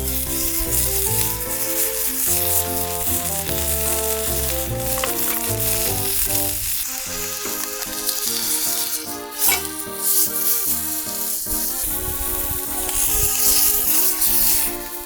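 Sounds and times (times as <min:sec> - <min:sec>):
background music: 0:00.0 - 0:15.0
steak sizzling in a frying pan: 0:00.0 - 0:15.0.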